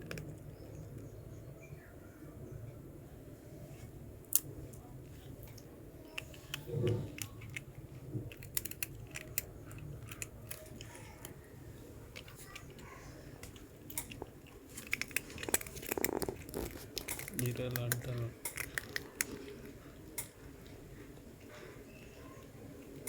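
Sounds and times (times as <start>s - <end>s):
cat crunching hard snack: 6.0s - 11.5s, 12.1s - 20.8s.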